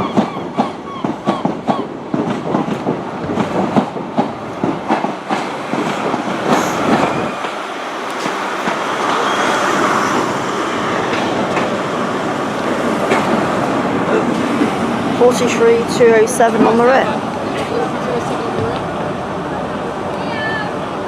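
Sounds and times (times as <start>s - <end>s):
train wheels clicking over joints: 0.0s - 14.8s
train running rumble: 0.0s - 20.2s.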